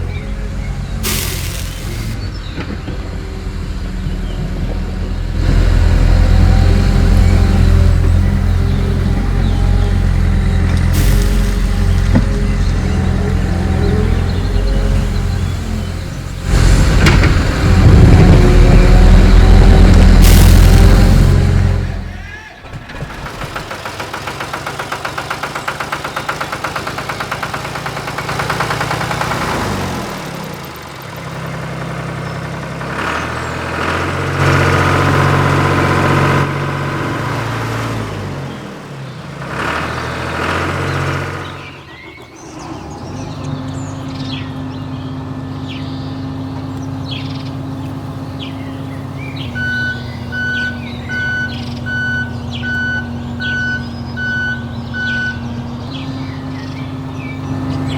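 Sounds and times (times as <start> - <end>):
vehicle engine revving and idling: 0.0 - 22.4, 23.0 - 57.9
reversing beeper: 12.8 - 22.5, 49.4 - 55.6.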